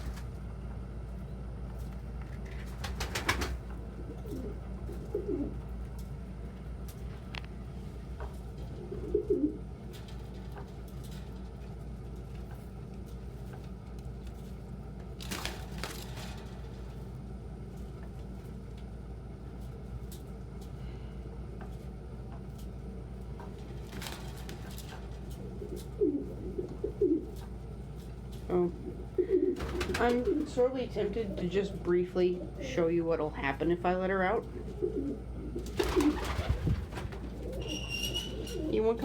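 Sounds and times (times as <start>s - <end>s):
steady low hum: 0.0s - 39.0s
pigeon cooing: 3.9s - 5.6s, 8.8s - 9.6s, 25.3s - 27.4s, 28.7s - 32.8s, 34.5s - 39.0s.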